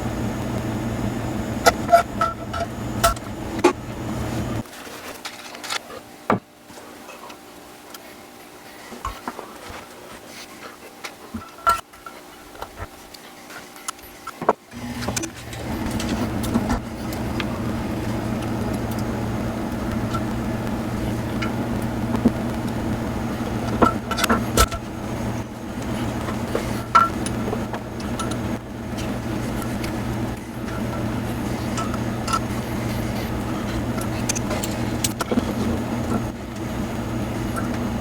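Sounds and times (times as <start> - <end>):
low machine hum: 0.0 - 4.6, 14.7 - 38.0.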